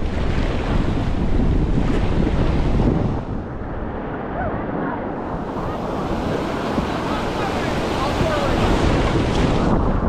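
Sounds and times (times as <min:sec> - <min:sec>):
wind buffeting microphone: 0:00.0 - 0:10.0
whitewater rapids roaring: 0:05.2 - 0:09.8.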